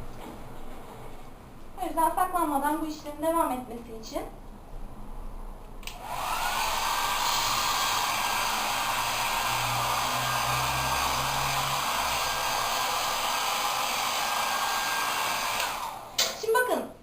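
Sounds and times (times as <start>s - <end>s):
blow dryer running: 5.8s - 16.4s.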